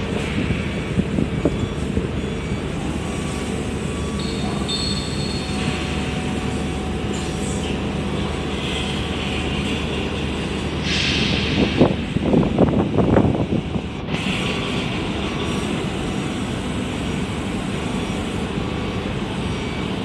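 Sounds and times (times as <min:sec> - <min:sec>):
ship machinery drone: 0:00.0 - 0:20.0.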